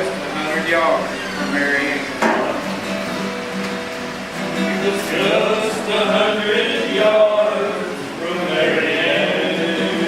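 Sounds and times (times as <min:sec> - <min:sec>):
men singing together: 0:04.6 - 0:10.0.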